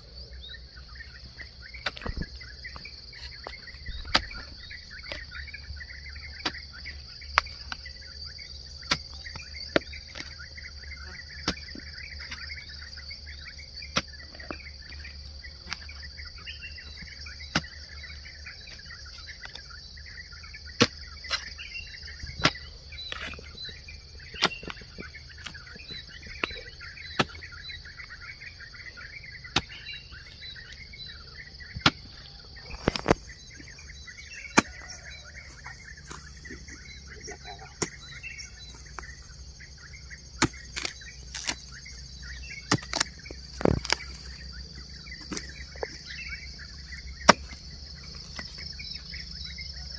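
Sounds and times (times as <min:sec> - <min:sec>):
birds chirping: 0:00.0 - 0:49.9
high insect drone: 0:00.0 - 0:49.9
hoe chopping into soil: 0:03.2 - 0:05.3, 0:11.4 - 0:12.5, 0:17.4 - 0:17.8, 0:26.4 - 0:27.6, 0:29.4 - 0:29.9, 0:31.7 - 0:33.2, 0:34.4 - 0:36.7, 0:40.3 - 0:41.8, 0:42.4 - 0:44.1, 0:47.1 - 0:48.6.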